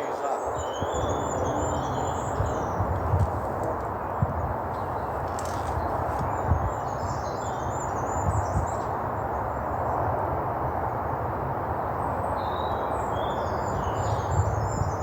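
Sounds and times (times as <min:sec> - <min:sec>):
small birds chirping: 0:00.0 - 0:10.1.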